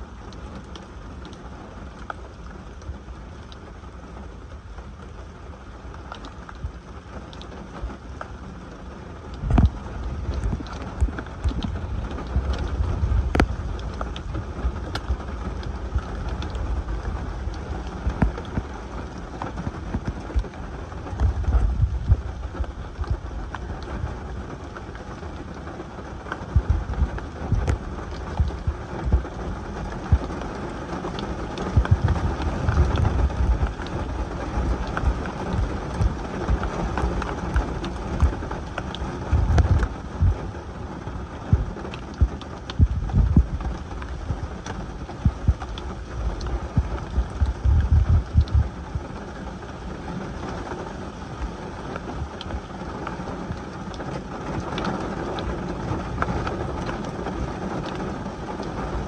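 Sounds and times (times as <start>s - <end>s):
rain on a car: 0.0s - 59.0s
sharp raindrop hits: 0.0s - 59.0s
low rumble: 9.2s - 52.7s.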